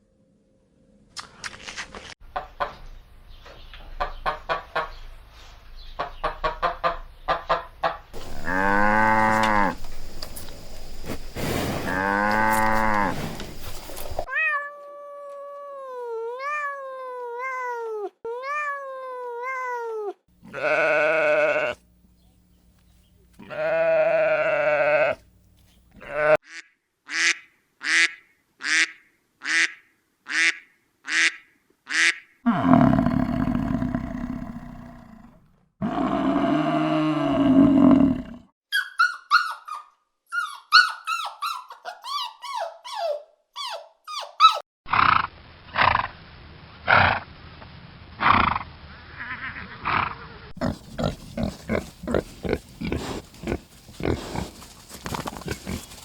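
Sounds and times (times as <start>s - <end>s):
farm animal calls: 6.0s - 14.3s, 23.4s - 25.2s, 49.1s - 56.0s.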